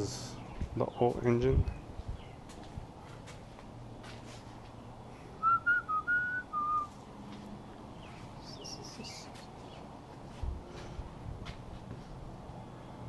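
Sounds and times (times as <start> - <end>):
person whistling a tune: 5.4 - 6.9.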